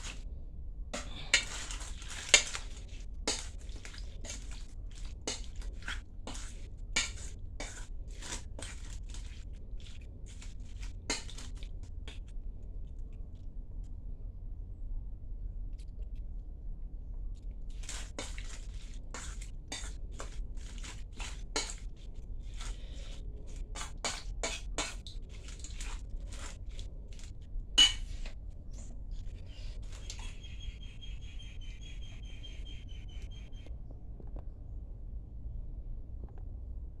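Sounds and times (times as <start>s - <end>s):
cutlery clinking against dishes: 27.8s - 28.2s.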